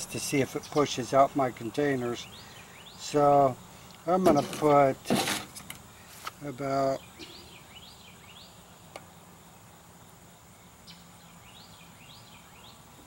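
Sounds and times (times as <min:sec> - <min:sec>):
bird chirping faintly: 0:05.9 - 0:09.0.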